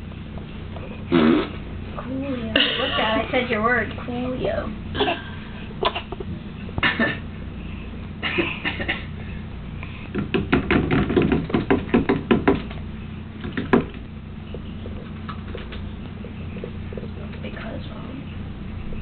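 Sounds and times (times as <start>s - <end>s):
toddler blowing raspberries: 0.9s - 1.6s.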